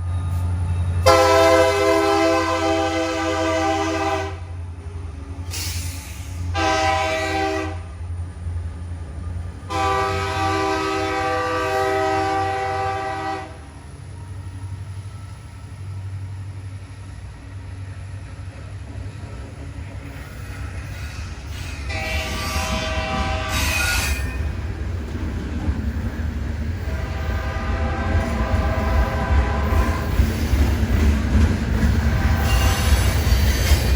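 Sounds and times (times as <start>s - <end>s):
locomotive rumbling: 0.0s - 33.9s
locomotive air horn blasts: 1.0s - 4.5s, 6.5s - 7.9s, 9.7s - 13.6s, 21.9s - 24.0s, 26.9s - 30.2s, 32.2s - 33.0s.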